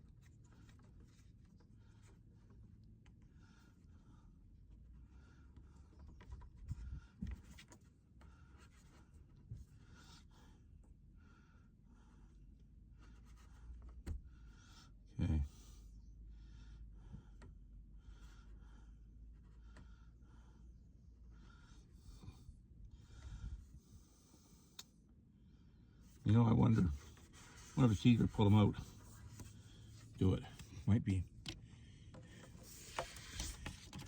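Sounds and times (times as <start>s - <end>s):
person breathing heavily: 14.2s - 24.8s.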